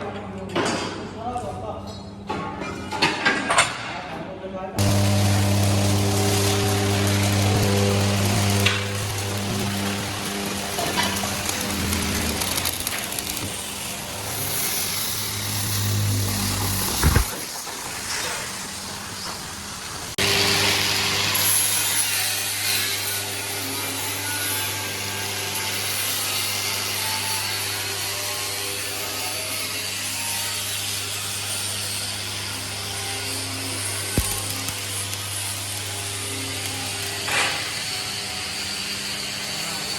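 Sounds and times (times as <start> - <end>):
power tool hissing: 4.8 - 22.0, 33.4 - 39.6.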